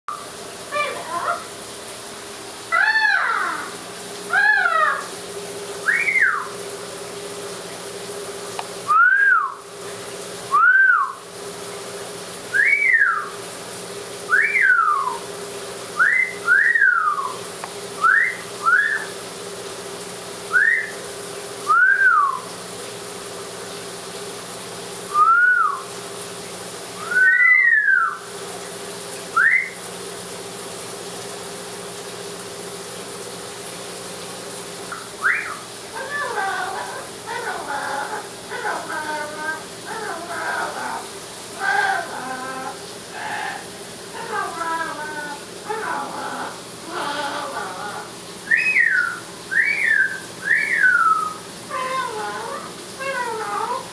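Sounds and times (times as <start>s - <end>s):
shower water hissing: 0.1s - 53.9s
parrot whistling: 2.7s - 5.1s, 5.8s - 6.5s, 8.9s - 9.6s, 10.5s - 11.2s, 12.5s - 13.3s, 14.3s - 15.2s, 16.0s - 17.4s, 18.0s - 19.2s, 20.5s - 21.0s, 21.7s - 22.5s, 25.1s - 25.9s, 27.0s - 28.2s, 29.3s - 29.8s, 34.9s - 41.0s, 41.6s - 53.8s.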